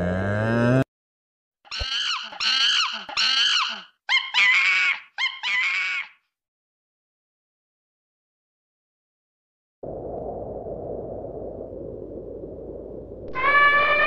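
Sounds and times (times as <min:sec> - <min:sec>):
monkey calling: 0:01.7 - 0:06.2.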